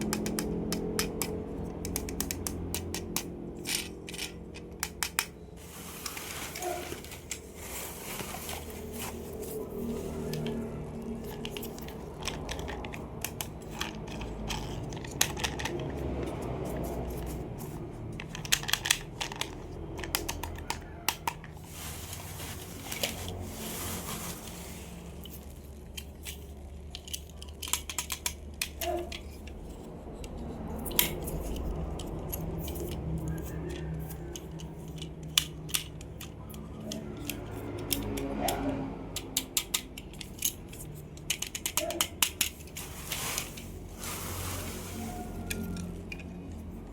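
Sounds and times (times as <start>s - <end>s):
plastic clicks and taps: 0.0s - 5.4s
packaging rustling or tearing: 5.6s - 17.4s, 19.4s - 27.6s, 42.5s - 46.8s.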